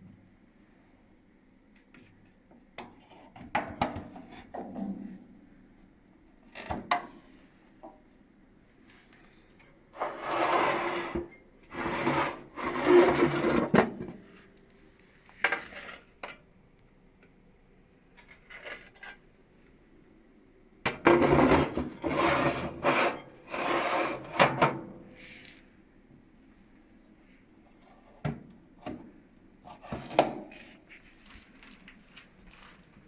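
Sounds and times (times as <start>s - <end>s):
rough scraping strokes: 10.0s - 13.7s, 21.2s - 24.4s.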